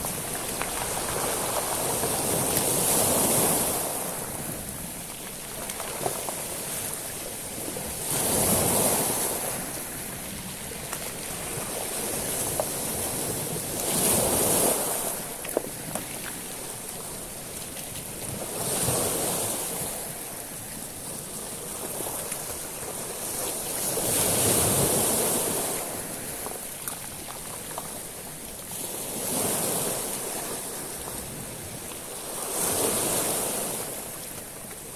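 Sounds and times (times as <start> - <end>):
waves washing over shingle: 0.0 - 34.9.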